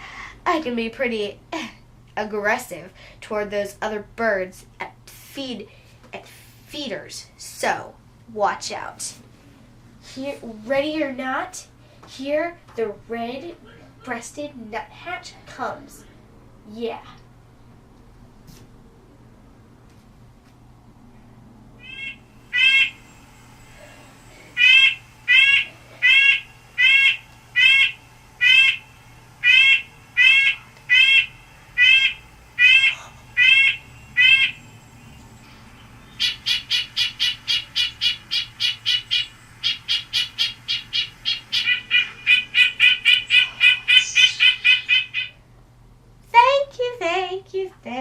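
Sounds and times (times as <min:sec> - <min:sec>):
nuthatch calling: 0:21.8 - 0:45.4.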